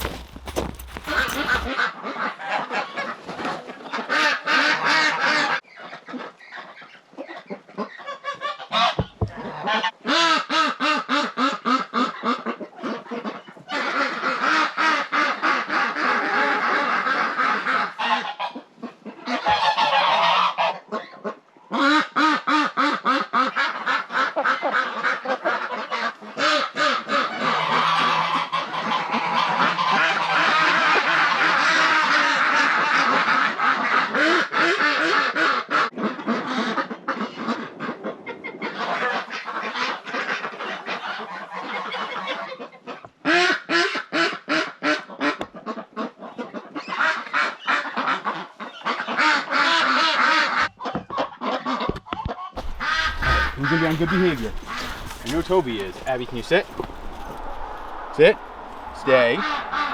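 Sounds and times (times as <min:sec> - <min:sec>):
ducks quacking: 0:04.0 - 0:59.9
geese honking: 0:52.6 - 0:59.9.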